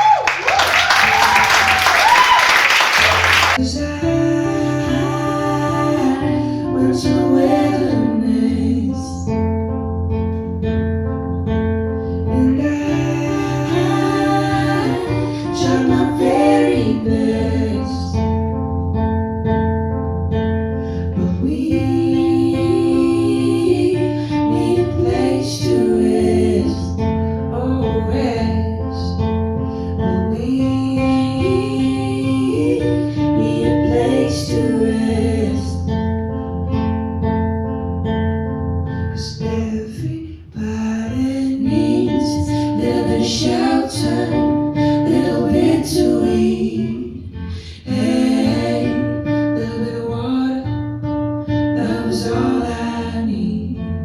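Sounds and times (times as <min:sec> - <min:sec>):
person singing: 0:03.0 - 0:09.2, 0:12.3 - 0:18.1
acoustic guitar: 0:03.0 - 0:54.0.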